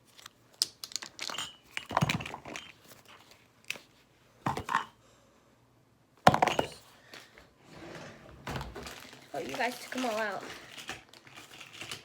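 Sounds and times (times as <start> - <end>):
handling clicks and rustles: 8.5 - 12.0.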